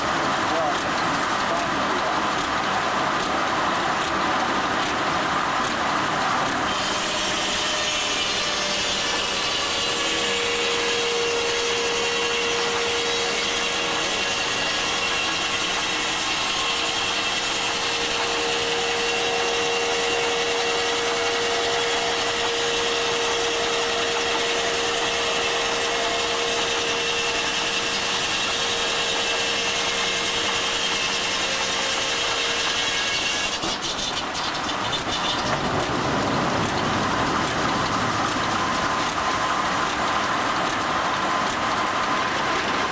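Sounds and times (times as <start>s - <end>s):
saw whine cutting log: 0.0s - 42.9s
rattling clatter: 33.6s - 42.6s.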